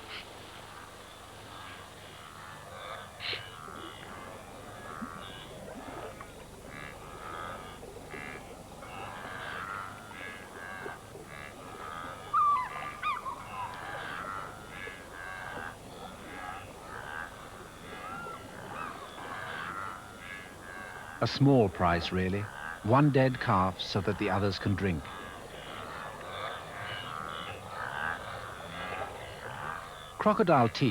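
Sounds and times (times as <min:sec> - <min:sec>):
wavering animal call: 0:06.7 - 0:21.3
wildebeest honking grunts: 0:06.7 - 0:30.9.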